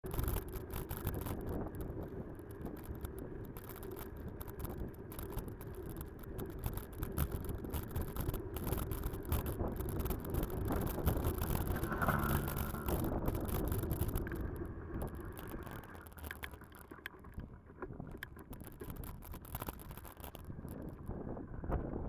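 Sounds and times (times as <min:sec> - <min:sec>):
small knocks and rattles: 0:00.0 - 0:21.1
wind gusts on microphone: 0:01.0 - 0:22.0
distant motorcycle engines rumbling: 0:01.4 - 0:19.3.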